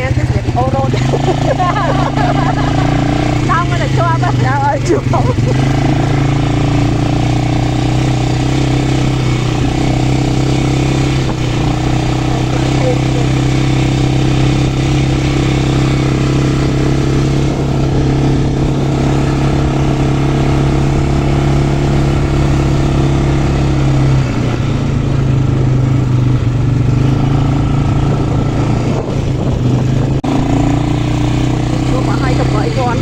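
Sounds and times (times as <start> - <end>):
quad bike engine running: 0.0 - 33.0.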